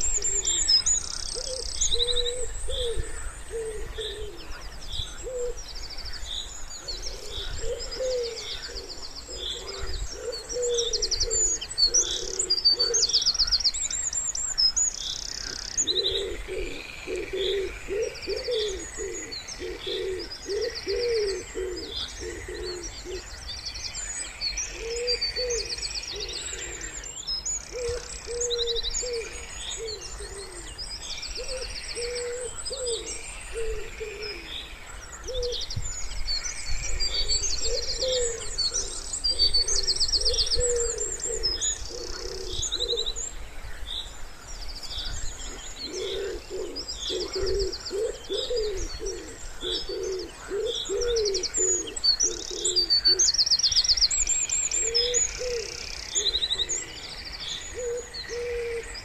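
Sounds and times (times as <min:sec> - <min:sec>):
songbirds chirping and trilling: 0:00.0 - 0:59.0
pigeon cooing: 0:01.4 - 0:04.5, 0:07.1 - 0:13.1, 0:15.5 - 0:23.2, 0:24.8 - 0:27.0, 0:27.7 - 0:30.7, 0:37.1 - 0:43.1, 0:45.5 - 0:53.3, 0:54.8 - 0:56.9, 0:57.8 - 0:58.9.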